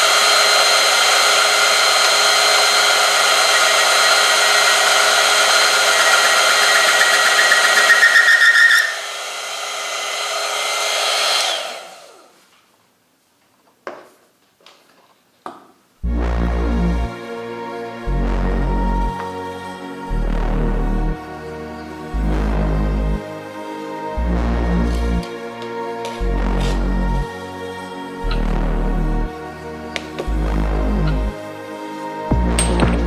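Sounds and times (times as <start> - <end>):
electric motor running: 0.0 - 12.2
metal on metal squeal: 6.0 - 9.0
music: 16.0 - 33.0.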